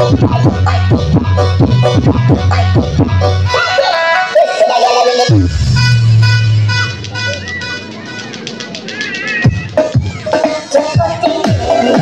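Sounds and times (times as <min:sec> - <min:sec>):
heavy bass kick: 0:00.0 - 0:03.4, 0:05.3 - 0:07.2
loud dance music: 0:00.0 - 0:12.0.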